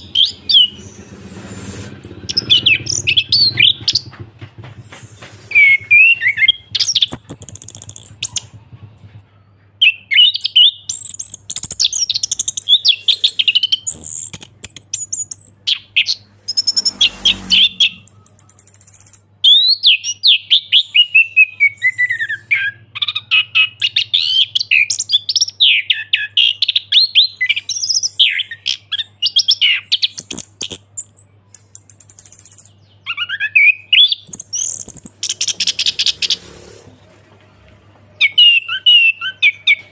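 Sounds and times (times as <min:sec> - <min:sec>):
harsh buzzy bird call: 0:00.0 - 0:04.2, 0:04.8 - 0:08.6, 0:09.8 - 0:24.9, 0:32.5 - 0:37.1.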